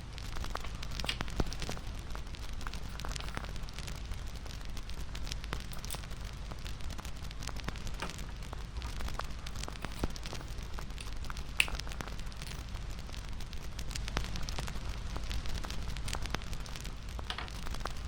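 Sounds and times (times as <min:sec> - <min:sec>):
wood fire crackling: 0:00.0 - 0:18.0
fire pops: 0:00.1 - 0:18.0.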